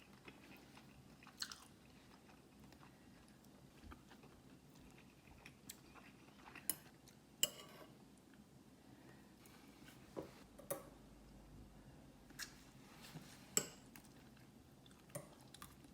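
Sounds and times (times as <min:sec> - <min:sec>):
cutlery clinking on dishes: 0:06.7 - 0:08.0.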